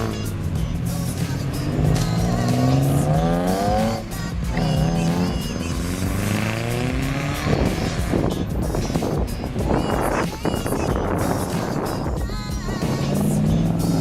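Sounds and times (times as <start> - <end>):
car engine accelerating hard: 0.0 - 8.5, 12.8 - 14.0.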